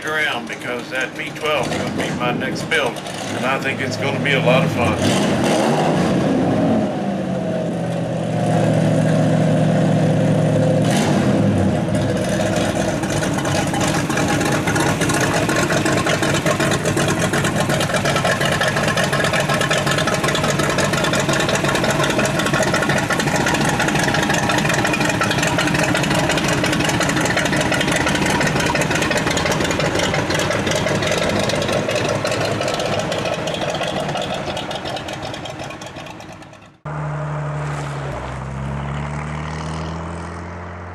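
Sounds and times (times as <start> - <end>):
old engine running: 0.0 - 5.5, 11.4 - 36.9.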